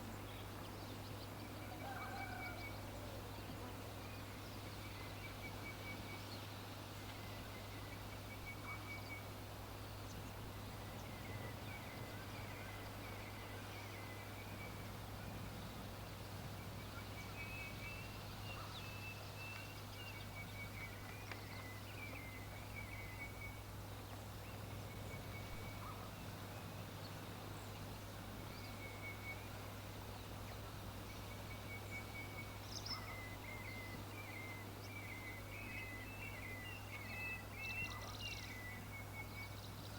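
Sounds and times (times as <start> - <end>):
birds trilling and chirping: 0.0 - 6.3, 16.0 - 39.9.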